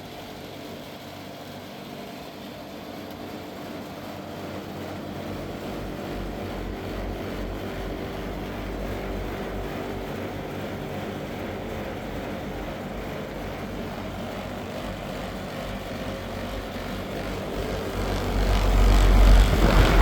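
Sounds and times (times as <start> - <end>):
deep low rumble: 17.4 - 20.0.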